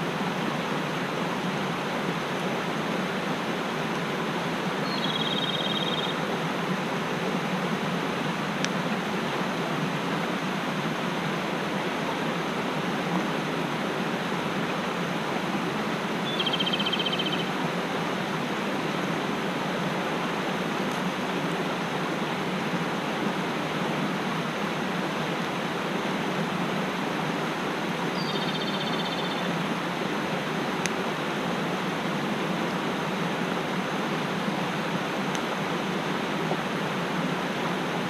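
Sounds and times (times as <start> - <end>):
mountain stream rushing: 0.0 - 38.0
high trilling call: 4.8 - 6.2, 16.2 - 17.5.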